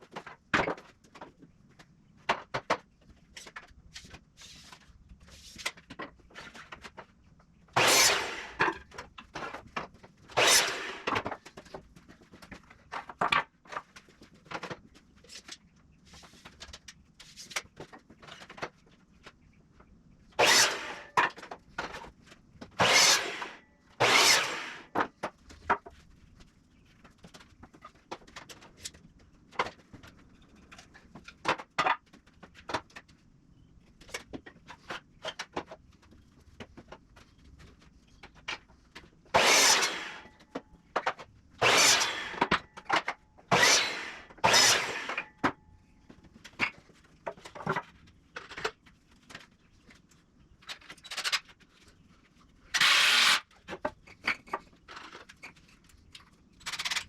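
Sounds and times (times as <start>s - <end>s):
power tool working wood: 7.8s - 8.6s, 10.4s - 11.3s, 20.4s - 21.2s, 22.8s - 25.0s, 39.4s - 40.3s, 41.6s - 42.6s, 43.5s - 45.3s, 52.8s - 53.4s.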